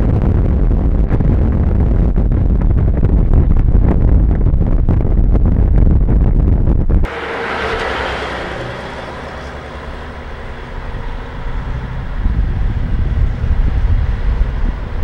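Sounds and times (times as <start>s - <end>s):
wind buffeting microphone: 0.0s - 15.0s
diesel truck engine running: 7.1s - 15.0s.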